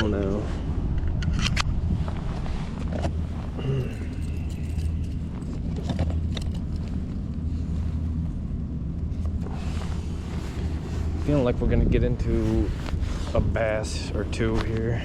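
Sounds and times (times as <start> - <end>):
wind rumble on microphone: 0.0 - 15.0
light clicks and handling noise: 0.9 - 8.1.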